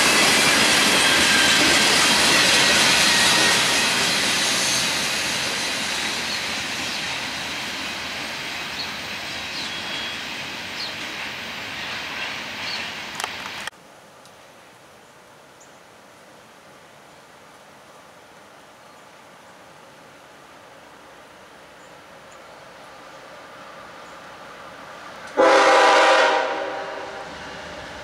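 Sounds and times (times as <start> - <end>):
freight train rumbling: 0.0 - 13.7, 23.0 - 28.0
faint outdoor hiss: 6.3 - 25.5.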